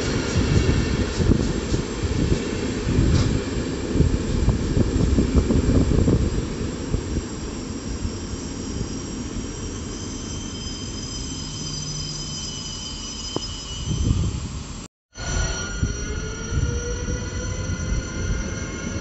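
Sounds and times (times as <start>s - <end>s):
train wheels rumbling on rails: 0.0s - 19.0s
high wheel squeals: 7.2s - 19.0s.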